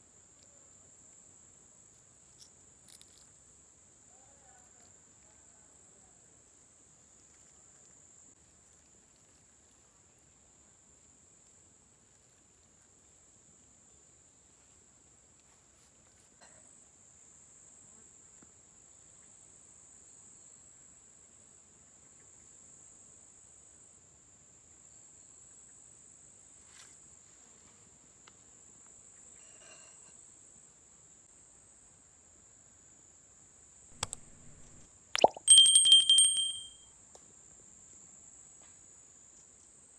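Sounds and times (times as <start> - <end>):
insect chirring: 34.0 - 36.7
soft clicks: 34.0 - 36.7.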